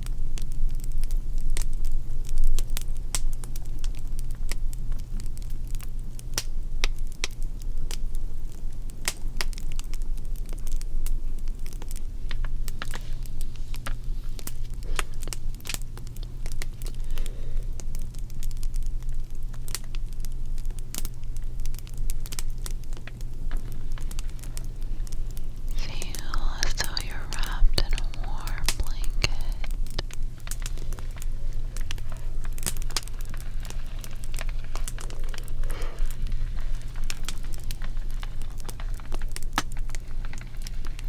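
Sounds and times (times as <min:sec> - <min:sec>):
fire crackling and popping: 0:00.0 - 0:41.0
low rumble: 0:23.6 - 0:37.2.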